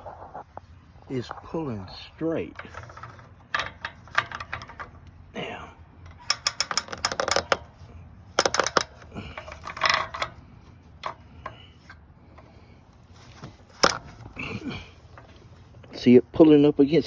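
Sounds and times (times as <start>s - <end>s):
hand winch ratchet clicking: 2.5s - 5.2s, 6.0s - 7.8s, 8.4s - 10.4s.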